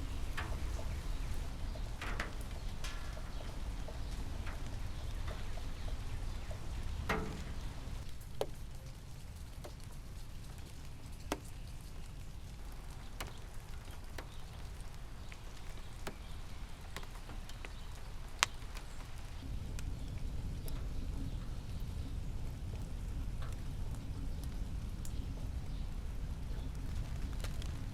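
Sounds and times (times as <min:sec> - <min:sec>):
raindrops tapping on a surface: 0:00.0 - 0:27.9
steady low rumble: 0:19.3 - 0:27.9.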